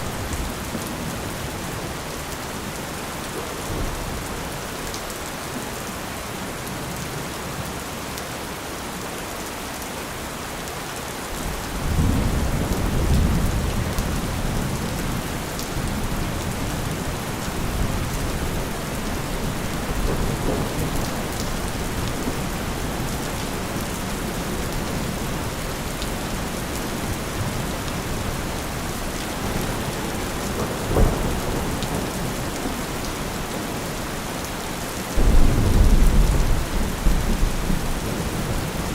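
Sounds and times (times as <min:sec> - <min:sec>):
heavy rain: 0:00.0 - 0:38.9
low rolling thunder: 0:11.4 - 0:25.2, 0:27.0 - 0:38.8
short low thunder crack: 0:29.4 - 0:33.4.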